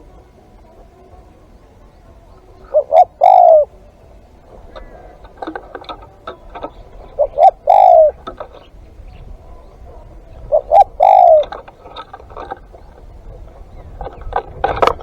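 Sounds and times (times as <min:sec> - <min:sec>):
dove cooing: 0:00.0 - 0:15.0.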